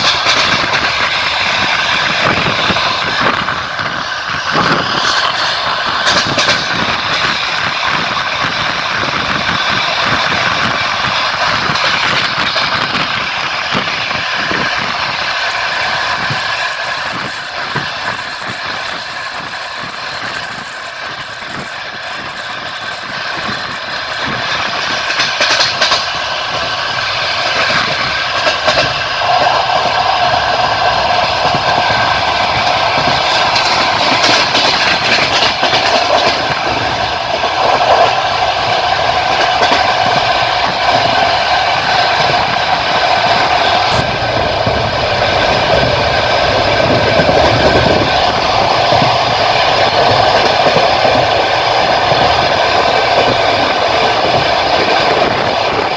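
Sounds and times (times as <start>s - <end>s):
rail joint clicks: 0.0s - 55.9s
train wheels rolling on rails: 0.0s - 55.9s.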